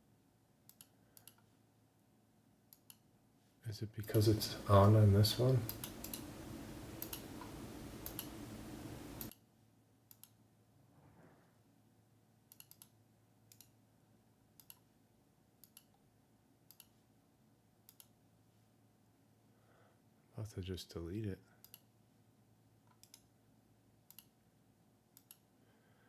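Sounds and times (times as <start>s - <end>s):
computer mouse clicking: 0.7s - 1.5s, 2.7s - 3.0s, 5.4s - 9.4s, 10.1s - 10.4s, 12.5s - 13.8s, 14.6s - 14.9s, 15.6s - 16.0s, 16.7s - 17.0s, 17.9s - 18.2s, 21.6s - 21.9s, 22.9s - 23.3s, 24.1s - 24.3s, 25.2s - 25.5s
steady background hiss: 3.6s - 9.3s.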